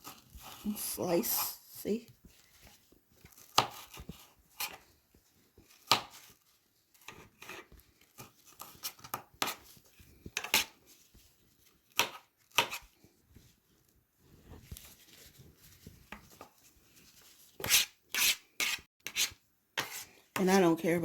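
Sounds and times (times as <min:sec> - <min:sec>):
knife slicing pepper: 0:03.3 - 0:04.8, 0:05.7 - 0:06.4, 0:11.9 - 0:13.0, 0:17.6 - 0:20.2.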